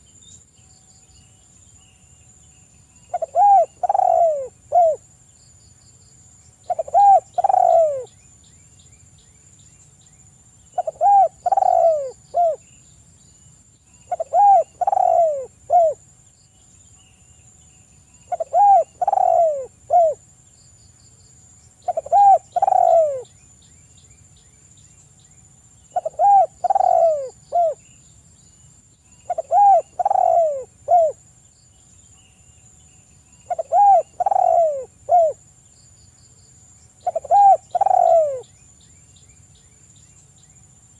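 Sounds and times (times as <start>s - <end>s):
dove cooing: 3.1s - 5.0s, 6.7s - 8.1s, 10.8s - 12.6s, 14.1s - 16.0s, 18.3s - 20.2s, 21.8s - 23.3s, 25.9s - 27.8s, 29.3s - 31.2s, 33.5s - 35.4s, 37.0s - 38.5s.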